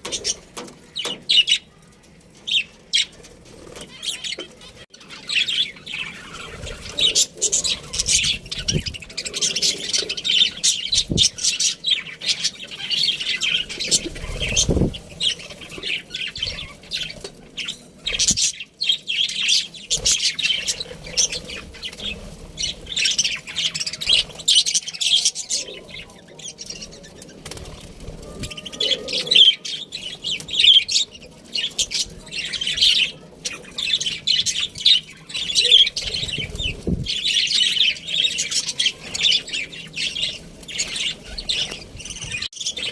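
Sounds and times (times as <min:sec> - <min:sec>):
budgerigars chirping: 0:05.0 - 0:26.1.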